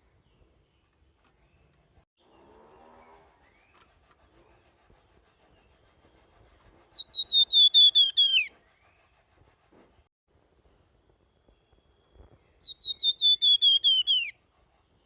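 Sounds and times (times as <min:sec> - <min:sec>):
songbird whistled phrase: 0:07.0 - 0:08.5, 0:12.6 - 0:14.4.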